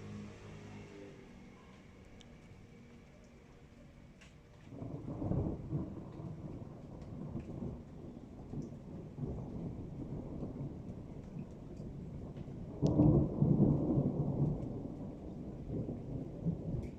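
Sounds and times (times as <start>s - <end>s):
thunder rumbling: 4.7s - 16.9s.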